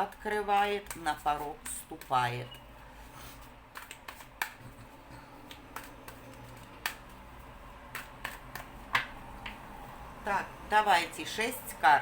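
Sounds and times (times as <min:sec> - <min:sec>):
cards clicking and tapping: 0:00.0 - 0:02.2, 0:03.7 - 0:09.6.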